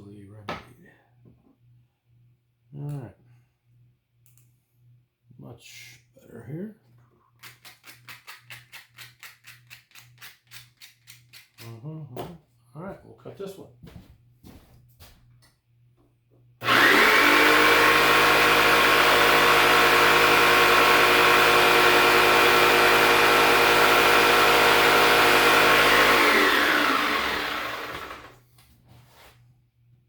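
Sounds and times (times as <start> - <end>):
electric cutting tool motor: 16.6 - 28.4.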